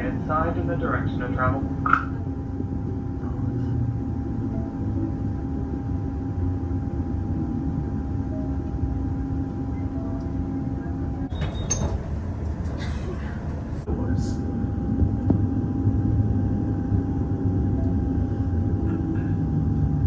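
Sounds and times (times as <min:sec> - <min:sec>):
electrical hum: 0:00.0 - 0:20.0
train wheels rumbling on track: 0:11.2 - 0:16.4.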